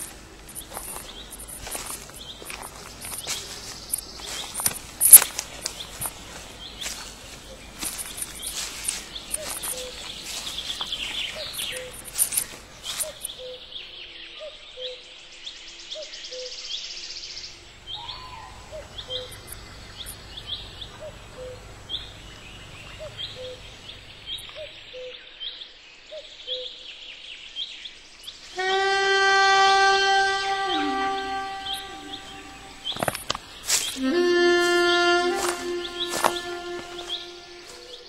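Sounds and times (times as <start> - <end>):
bird short rising call: 28.6 - 38.0
flute-like note: 28.6 - 38.0.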